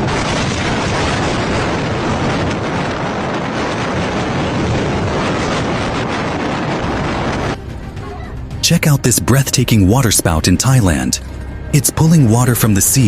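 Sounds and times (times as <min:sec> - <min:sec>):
wind blasting across microphone: 0:00.0 - 0:08.6.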